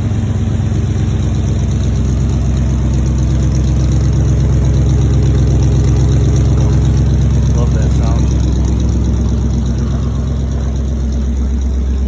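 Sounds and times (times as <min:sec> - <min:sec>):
carbureted engine idling: 0:00.0 - 0:12.0.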